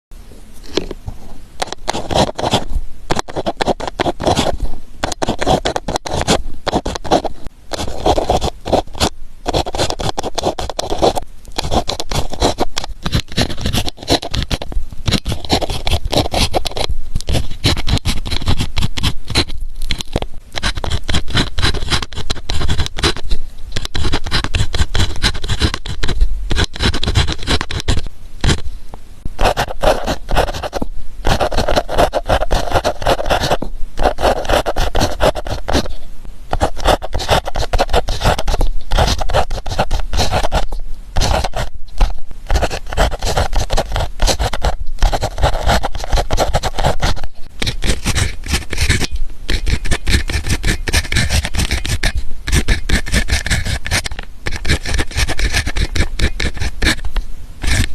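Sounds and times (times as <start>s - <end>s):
pen scratching on paper: 1.6s - 28.6s, 29.4s - 57.9s.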